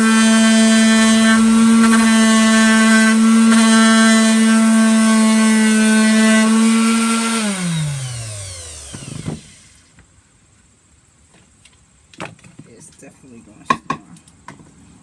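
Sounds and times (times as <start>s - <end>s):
electric sander winding down: 0.0s - 9.9s.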